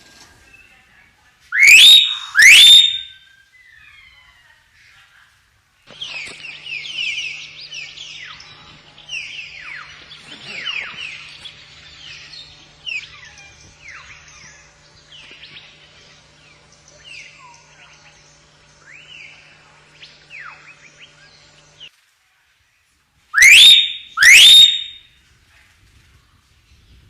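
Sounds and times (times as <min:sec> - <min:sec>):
faint steady hum: 0:00.0 - 0:27.0
chatter of falling chirps: 0:01.5 - 0:05.0, 0:05.9 - 0:21.9, 0:23.4 - 0:25.1
myna rising whistles: 0:01.6 - 0:03.2, 0:23.4 - 0:25.0.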